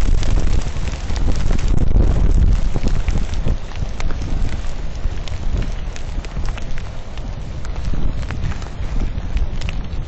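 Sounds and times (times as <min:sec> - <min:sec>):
rain drops tapping: 0:00.0 - 0:10.0
wind buffeting microphone: 0:00.0 - 0:10.0.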